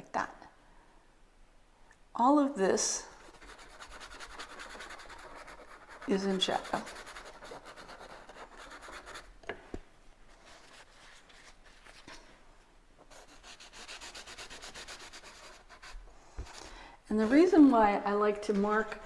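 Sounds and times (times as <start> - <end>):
drawing tool scribbling: 3.2 - 9.3, 13.1 - 17.6.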